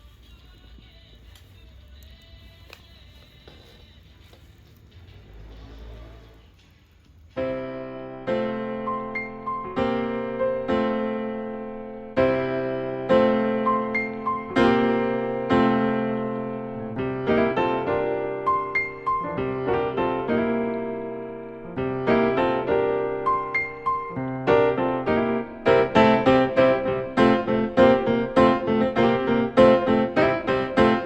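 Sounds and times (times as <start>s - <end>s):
gentle piano music: 7.4s - 31.0s.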